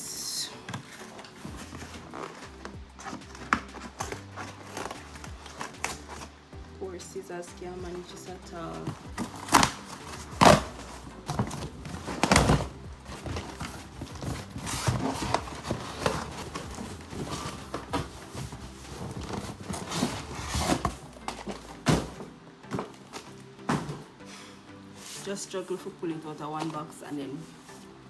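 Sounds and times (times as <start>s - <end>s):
packaging crinkling: 0.6s - 6.4s, 8.8s - 22.2s
cardboard box knocks and scrapes: 8.8s - 23.0s, 23.7s - 24.1s.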